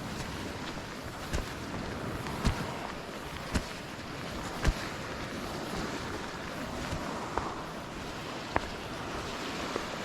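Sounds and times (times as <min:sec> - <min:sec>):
sea surf: 0:00.0 - 0:10.0
wind buffeting microphone: 0:00.0 - 0:10.0.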